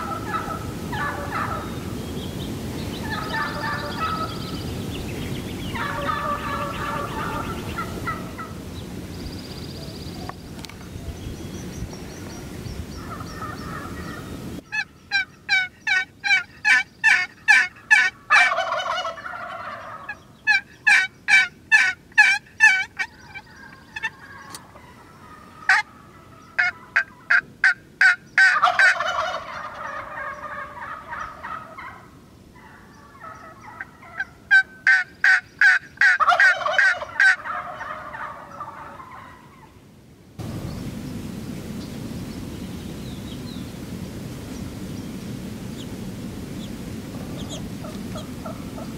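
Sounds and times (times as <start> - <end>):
turkey rattling gobble: 0.0 - 1.8, 3.0 - 4.4, 5.7 - 8.5, 13.0 - 39.7, 47.1 - 48.9
turkey yelps: 0.0 - 1.8, 3.0 - 4.4, 5.7 - 8.5, 13.0 - 39.8, 47.3 - 48.9.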